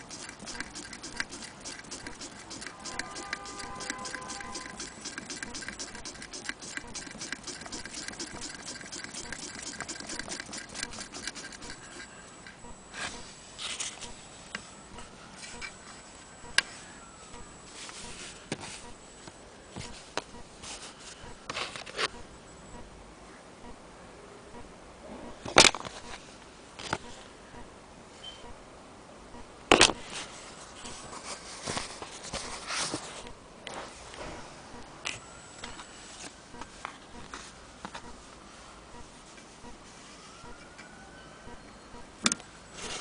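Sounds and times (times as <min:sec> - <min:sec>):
sewing machine clattering: 0:00.0 - 0:11.8.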